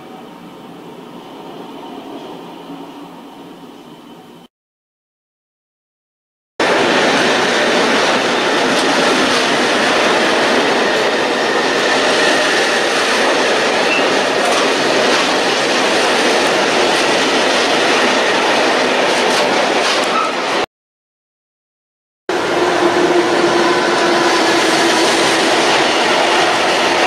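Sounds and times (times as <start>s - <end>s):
train wheels rushing on rails: 6.6s - 20.7s, 22.3s - 27.0s.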